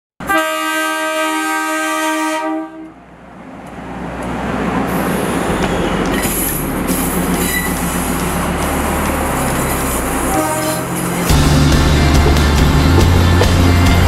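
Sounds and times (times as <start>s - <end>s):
train horn blast: 0.2s - 3.0s, 10.1s - 14.0s
train rumbling past: 0.2s - 14.0s.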